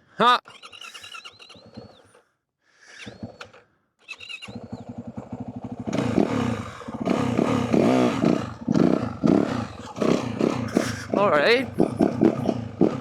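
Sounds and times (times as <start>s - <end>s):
dirt bike engine revving: 4.5s - 13.0s.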